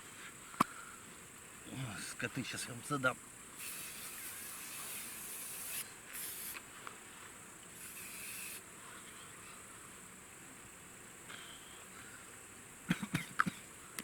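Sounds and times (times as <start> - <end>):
aerosol spray hissing: 3.6 - 6.6, 7.8 - 8.6.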